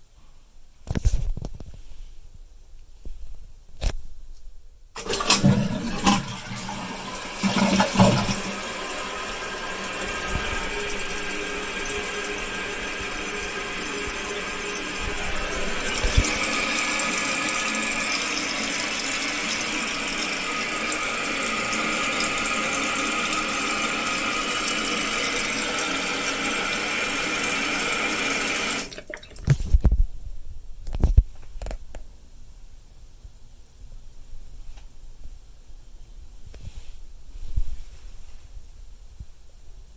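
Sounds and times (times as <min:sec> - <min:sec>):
flush mechanism clunks: 0:05.0 - 0:08.9
toilet fill valve hissing: 0:05.0 - 0:29.4
water rushing: 0:05.0 - 0:29.4.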